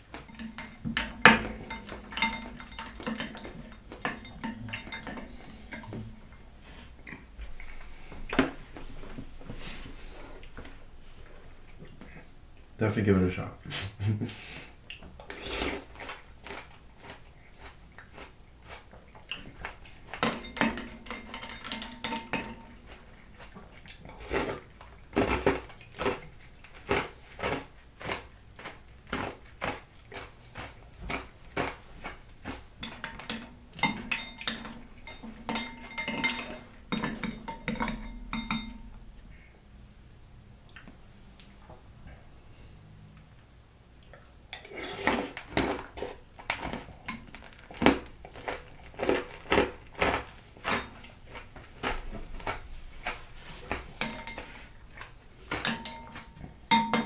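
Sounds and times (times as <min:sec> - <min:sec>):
spoon scraping a bowl: 0:44.6 - 0:46.2.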